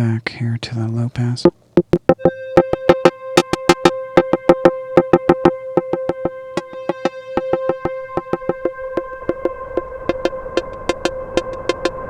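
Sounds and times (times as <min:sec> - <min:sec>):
clicky percussive synth notes: 0:01.5 - 0:11.9
held synthesizer tone: 0:01.8 - 0:10.8.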